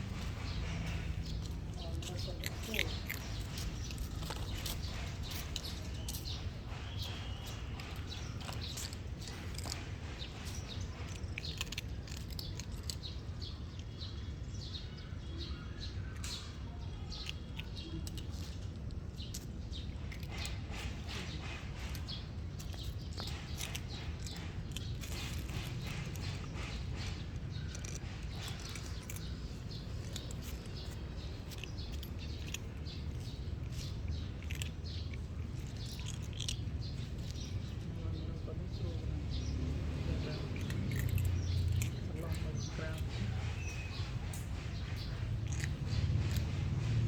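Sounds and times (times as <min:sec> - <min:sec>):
steady low hum: 0:00.0 - 0:13.8
cats chewing food: 0:00.0 - 0:47.0.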